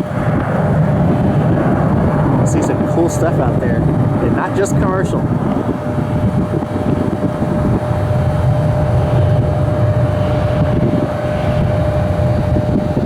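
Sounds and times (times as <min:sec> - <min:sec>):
jet engine rumble: 0:00.0 - 0:13.0
jet engine whine: 0:00.0 - 0:13.0.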